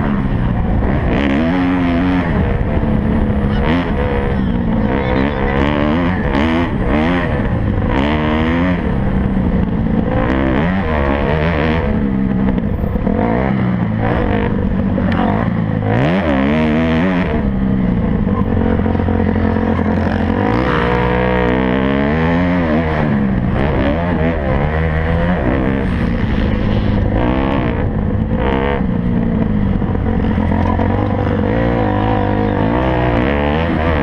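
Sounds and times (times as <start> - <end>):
motocross bike engines revving: 0.0 - 34.0.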